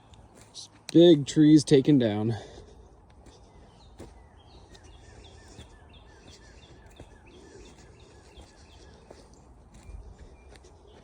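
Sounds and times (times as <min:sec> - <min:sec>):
bird chirping: 0:03.2 - 0:11.0.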